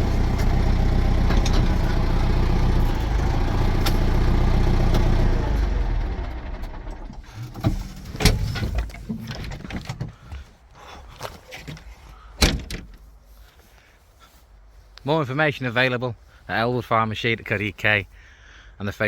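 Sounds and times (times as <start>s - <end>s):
tractor diesel engine running: 0.0s - 9.4s.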